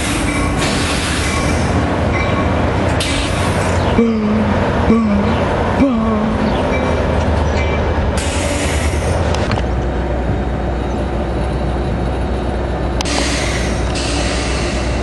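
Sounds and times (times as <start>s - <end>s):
diesel train drone: 0.0s - 15.0s
air hiss bursts: 13.1s - 15.0s.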